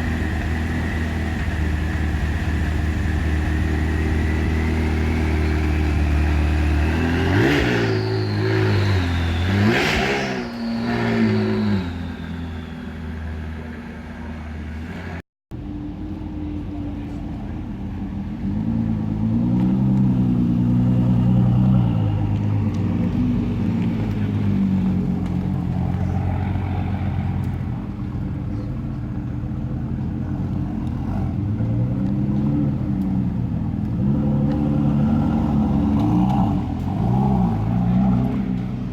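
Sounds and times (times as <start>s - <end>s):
car engine revving: 0.0s - 14.2s.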